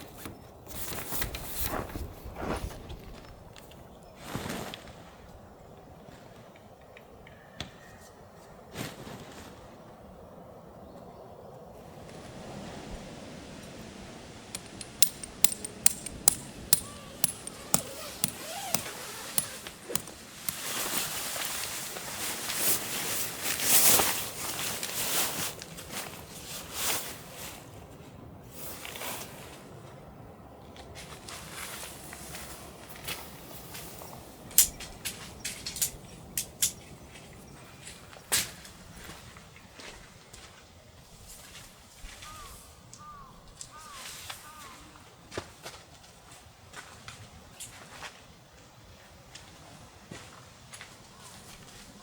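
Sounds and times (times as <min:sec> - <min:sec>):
sharp metallic knocks: 0:14.6 - 0:20.6.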